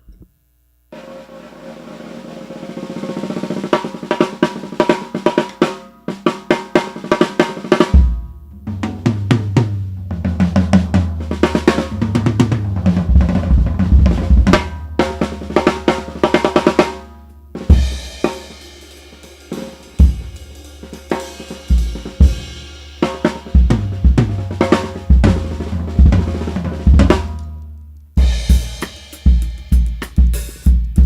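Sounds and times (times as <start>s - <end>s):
snare drum roll: 0.9s - 27.4s, 28.2s - 31.0s
bass drum and tom hits: 7.9s - 16.7s, 17.6s - 18.5s, 20.0s - 20.6s, 23.4s - 27.4s, 28.2s - 31.0s.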